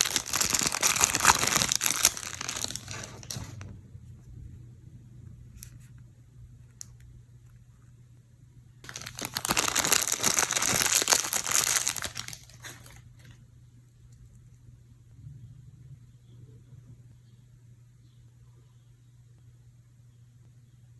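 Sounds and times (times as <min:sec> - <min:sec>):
packaging crinkling: 0:00.0 - 0:03.6, 0:08.8 - 0:13.4.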